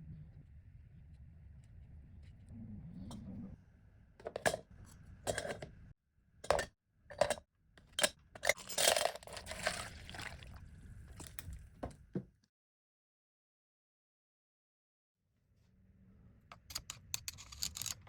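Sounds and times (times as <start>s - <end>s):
metal parts knocking and clinking: 16.5s - 18.0s.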